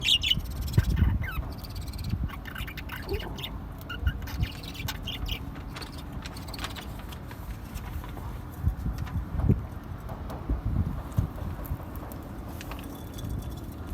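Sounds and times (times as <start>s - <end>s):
parrots squawking: 0.0s - 6.6s
low thumps and rumble: 8.6s - 12.4s.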